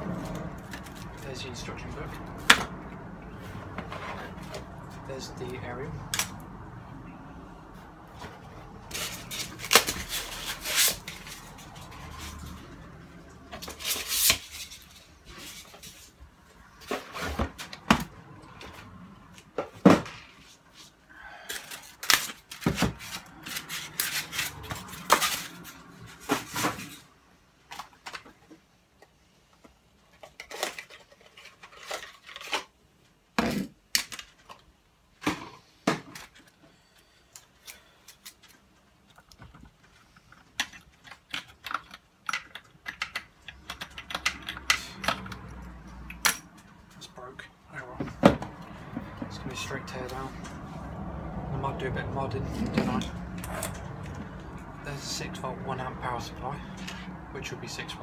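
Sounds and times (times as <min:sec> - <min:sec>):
hard plastic items clicking and knocking: 0:38.2 - 0:46.7.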